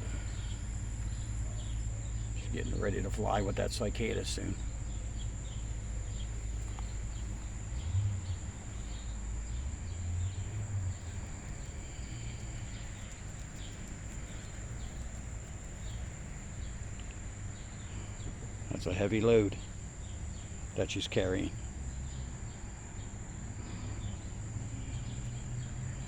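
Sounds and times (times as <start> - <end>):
wind rumble on microphone: 0.0 - 19.4
insect chirps: 0.0 - 26.0.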